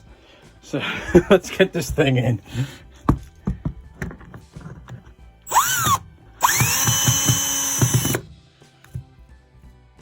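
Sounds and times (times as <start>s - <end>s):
power drill driving fasteners: 5.4s - 8.3s.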